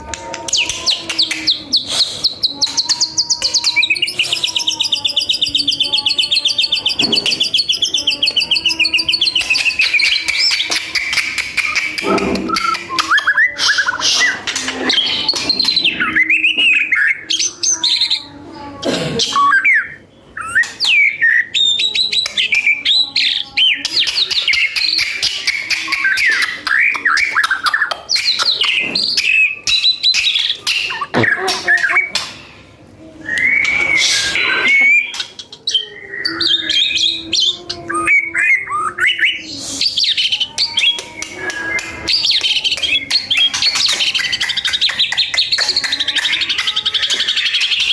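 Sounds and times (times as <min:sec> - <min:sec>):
songbird singing: 0:00.2 - 0:18.3.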